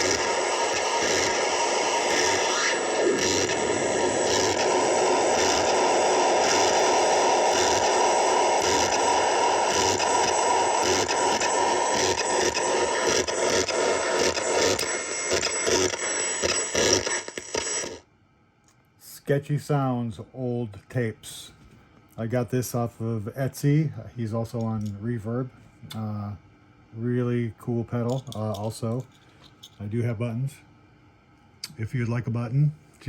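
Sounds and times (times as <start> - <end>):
harsh scraping synth noise: 0.0 - 18.0.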